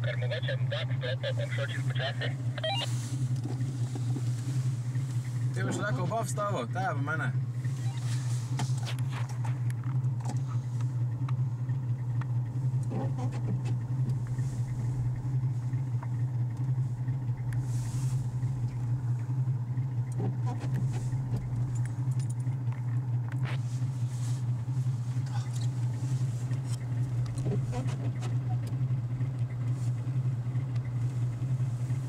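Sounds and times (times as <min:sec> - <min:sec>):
car engine humming: 0:00.0 - 0:32.0.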